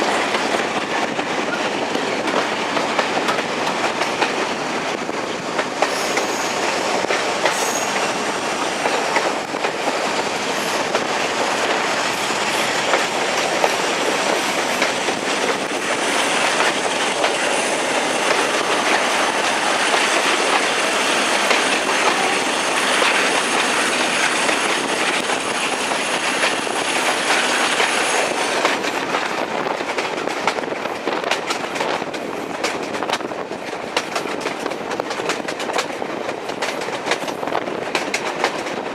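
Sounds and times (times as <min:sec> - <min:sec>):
train wheels clattering over rail joints: 0:00.0 - 0:38.9
high wheel squeal: 0:07.6 - 0:08.1.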